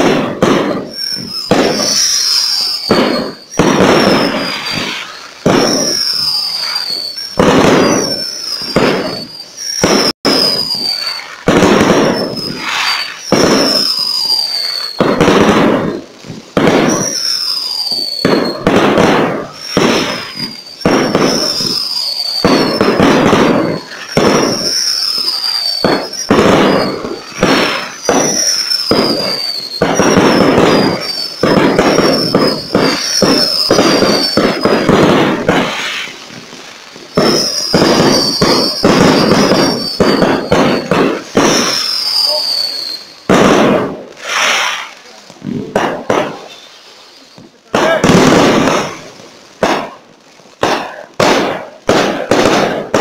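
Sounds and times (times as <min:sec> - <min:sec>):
fireworks bangs: 0:00.0 - 0:53.0
fireworks crackling: 0:00.0 - 0:53.0
falling whistles: 0:00.5 - 0:36.2, 0:37.0 - 0:43.3, 0:44.2 - 0:45.2, 0:46.2 - 0:47.5.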